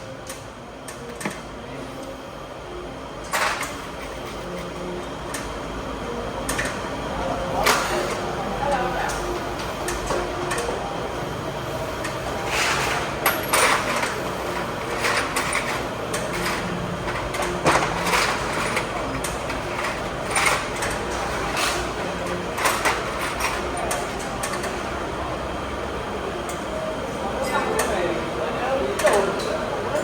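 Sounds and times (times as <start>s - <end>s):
knocks and clatters of tools: 12.0s - 24.8s.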